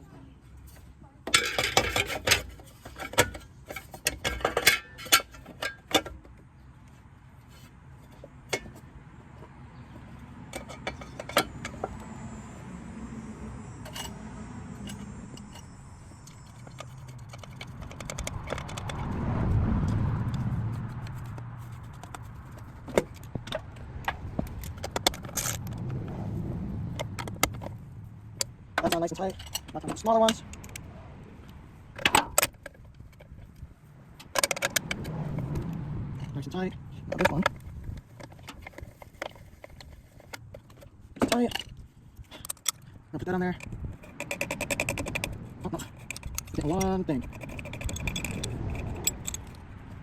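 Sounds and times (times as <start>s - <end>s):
low rumble: 11.7s - 28.8s, 34.7s - 38.1s
metal tools clinking: 13.6s - 18.8s, 28.8s - 30.9s.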